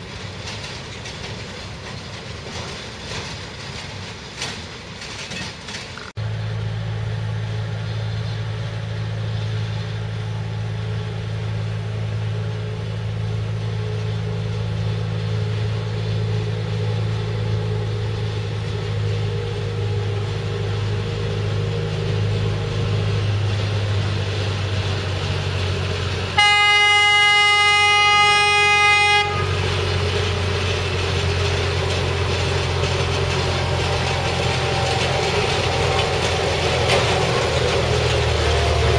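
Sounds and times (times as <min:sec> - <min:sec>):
locomotive engine running: 0:00.0 - 0:38.9
loud horn blast: 0:26.3 - 0:29.9.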